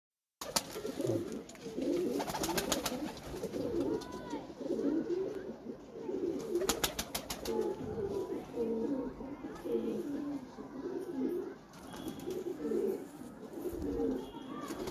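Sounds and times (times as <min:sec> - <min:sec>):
pigeons cooing: 0:00.5 - 0:14.9.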